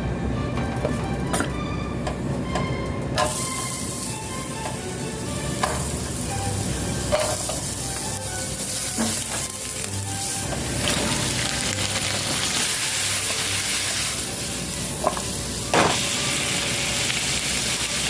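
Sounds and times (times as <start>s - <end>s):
food sizzling in a frying pan: 3.2s - 18.0s
utensil knocking in pan: 5.6s - 5.9s.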